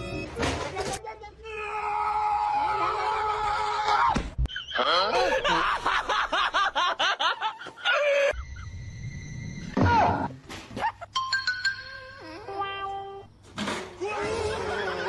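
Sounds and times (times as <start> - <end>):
high-pitched laughter: 14.0 - 15.0.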